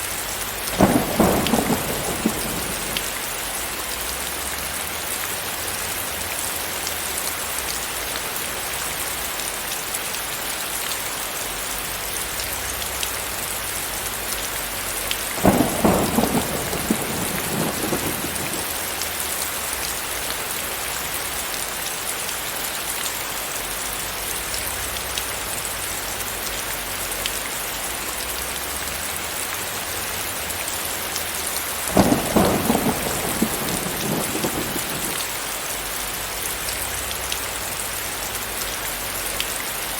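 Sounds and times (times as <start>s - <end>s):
heavy rain falling: 0.0s - 39.9s
thunder rumbles: 0.6s - 3.4s, 15.3s - 19.1s, 31.8s - 35.4s.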